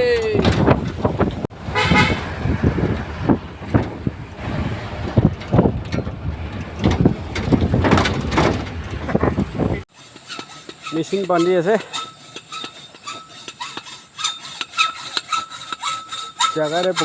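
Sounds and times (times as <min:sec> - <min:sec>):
wind on microphone: 0:00.0 - 0:09.9
knocks and rattles from bumps: 0:00.0 - 0:17.0
vehicle driving on rough road: 0:00.2 - 0:09.9.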